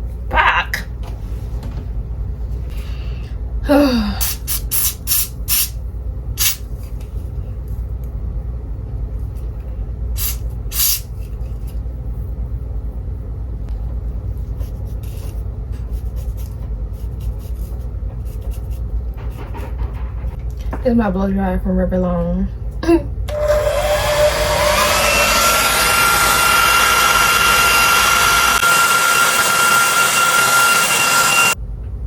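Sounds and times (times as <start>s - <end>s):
steady low hum: 0.0s - 28.6s, 31.5s - 32.0s
short spray hisses: 10.2s - 11.1s.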